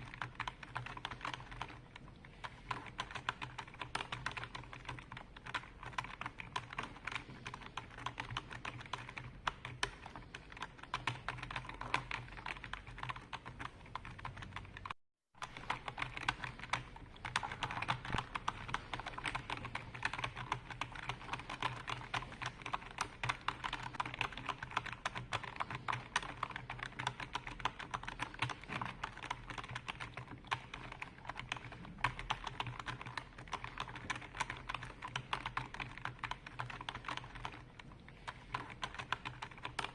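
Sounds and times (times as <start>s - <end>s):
fast typing on computer keyboard: 0.0s - 39.9s.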